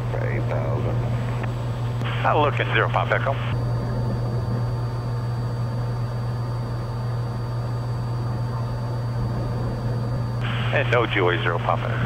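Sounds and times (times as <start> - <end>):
airplane engine droning: 0.0 - 12.0
wind and airframe noise: 3.6 - 12.0.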